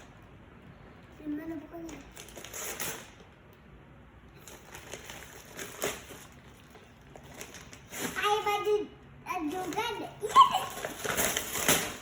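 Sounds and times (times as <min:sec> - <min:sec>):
wrapping paper rustling: 0:01.8 - 0:03.3, 0:04.3 - 0:08.5, 0:09.4 - 0:12.0.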